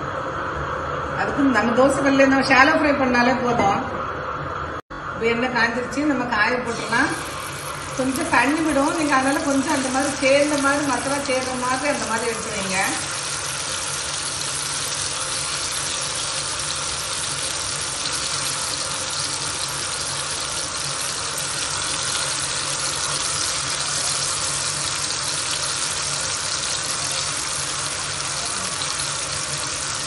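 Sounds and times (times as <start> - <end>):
vegetables sizzling in hot oil: 6.7 - 30.0.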